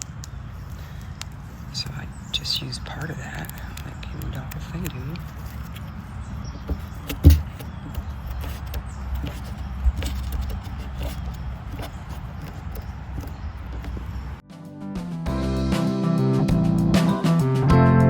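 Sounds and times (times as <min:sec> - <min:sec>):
clicks and knocks on plastic barrel: 0:06.6 - 0:14.3
sharp thump: 0:06.7 - 0:07.7.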